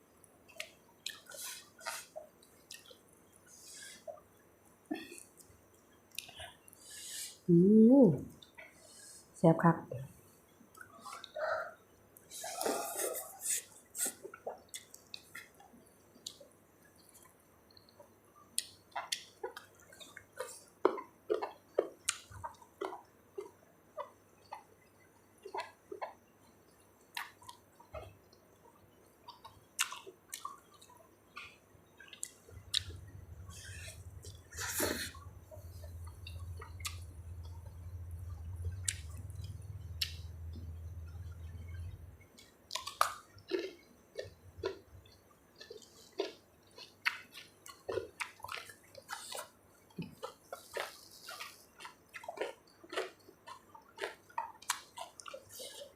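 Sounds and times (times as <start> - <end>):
wet chewing and lip smacks: 0.5 - 4.2, 5.1 - 6.8, 13.6 - 24.7, 25.4 - 28.1, 29.2 - 55.9
low steady hum: 22.1 - 53.9.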